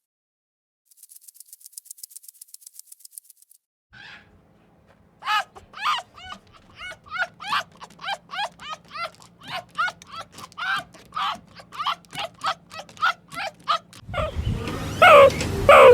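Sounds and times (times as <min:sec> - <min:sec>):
puppy yipping and whining: 0:05.2 - 0:15.9
dry rattling clicks: 0:05.6 - 0:14.1.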